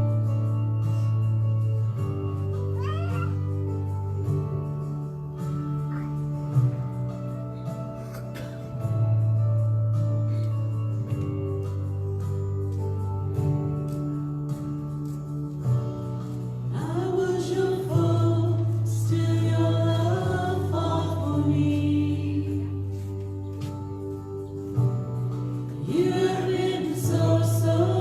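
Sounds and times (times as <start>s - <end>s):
bass notes: 0.0s - 28.0s
people singing: 16.7s - 23.8s, 25.7s - 28.0s.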